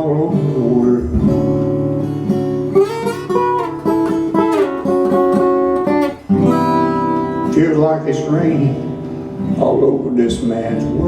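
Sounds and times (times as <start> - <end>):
acoustic guitar strummed and picked: 0.0 - 11.0.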